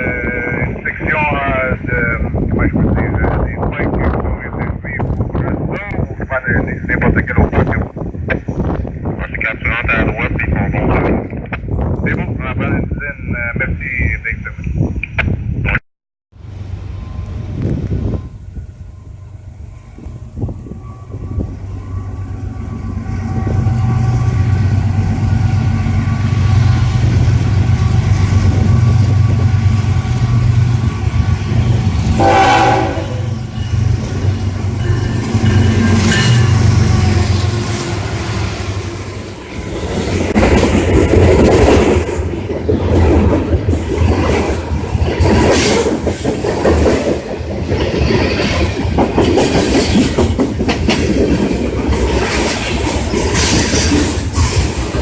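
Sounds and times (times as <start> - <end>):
diesel locomotive engine droning: 0.0 - 15.7, 16.3 - 55.0
train horn: 32.1 - 33.5
train wheels clickety-clack: 39.8 - 55.0.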